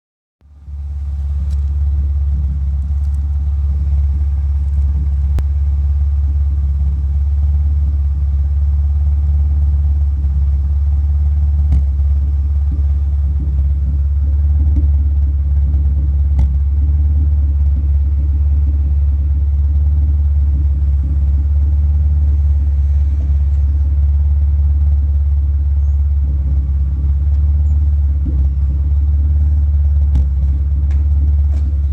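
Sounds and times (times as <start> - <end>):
car engine idling with misfire: 0.4 - 31.9.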